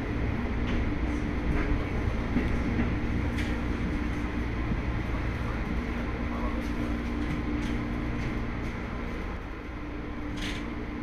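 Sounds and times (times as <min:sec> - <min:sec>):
train rumbling on track: 0:00.0 - 0:11.0
wheels clicking on rails: 0:10.3 - 0:10.8.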